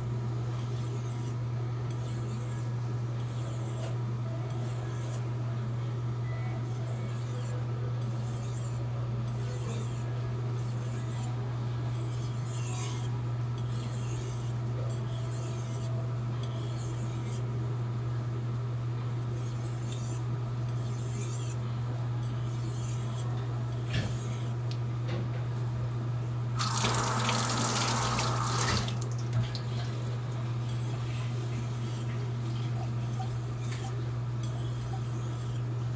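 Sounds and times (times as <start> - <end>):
knife scraping on whetstone: 0.7 - 5.2, 6.6 - 17.5, 19.4 - 21.6, 22.2 - 24.6, 30.7 - 35.8.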